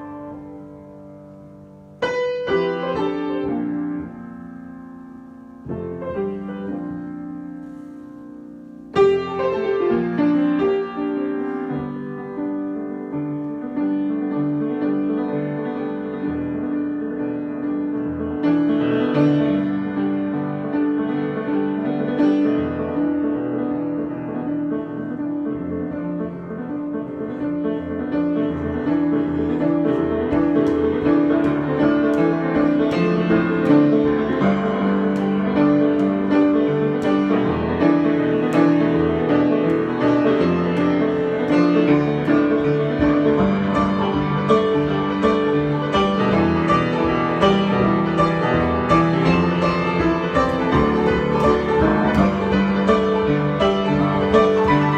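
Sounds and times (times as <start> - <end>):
solo piano: 0.0 - 54.9.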